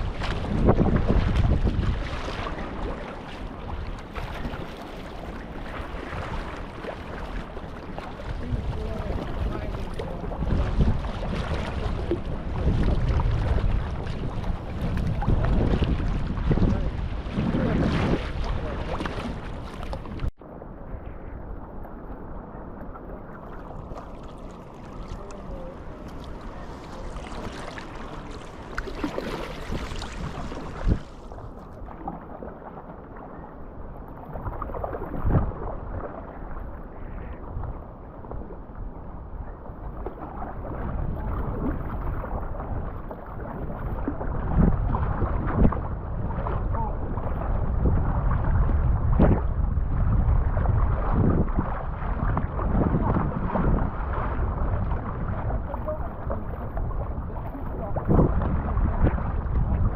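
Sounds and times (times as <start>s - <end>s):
water splashing against kayak hull: 0.0s - 20.4s, 22.0s - 59.9s
wind rumbling on microphone: 0.0s - 59.9s.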